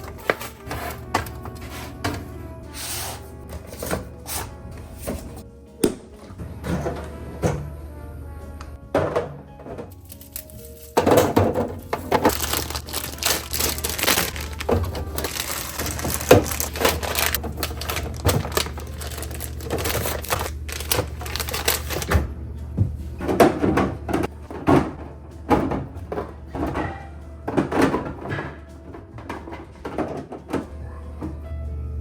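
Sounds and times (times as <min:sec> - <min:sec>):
packaging crackling: 0:00.0 - 0:02.1, 0:10.0 - 0:11.1, 0:11.8 - 0:22.2
items set down knocking: 0:00.0 - 0:07.8, 0:08.9 - 0:30.7.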